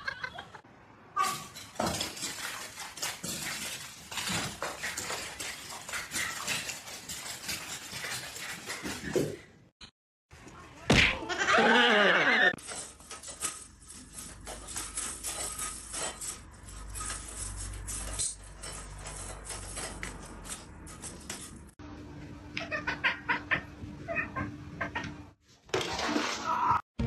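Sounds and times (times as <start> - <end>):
clinks and clatter of dishes: 1.2 - 9.5, 12.6 - 21.7.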